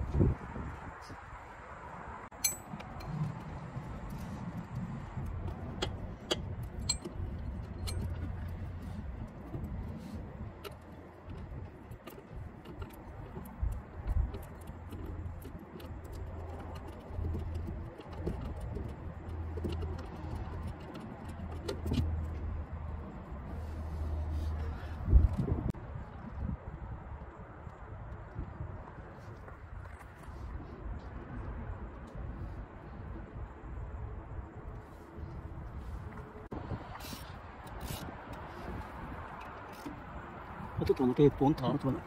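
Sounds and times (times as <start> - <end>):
hand tools clinking on metal: 2.4 - 3.1, 6.3 - 7.2.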